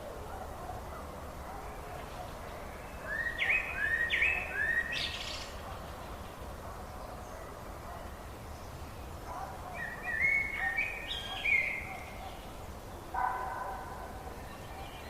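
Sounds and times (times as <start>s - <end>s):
faint background hiss: 0.0s - 15.0s
bird song whistled notes: 2.6s - 5.5s, 9.7s - 12.5s.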